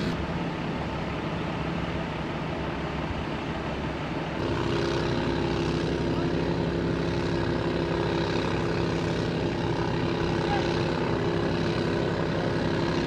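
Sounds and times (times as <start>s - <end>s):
higher hum: 0.0s - 1.1s
large engine droning: 0.0s - 13.0s.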